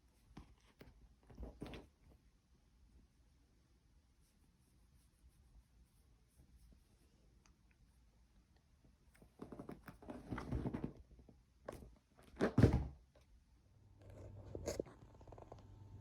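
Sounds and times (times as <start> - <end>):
rustling and scraping: 0.1 - 2.2, 9.2 - 12.8
loud thunk on hard surface: 12.4 - 13.0.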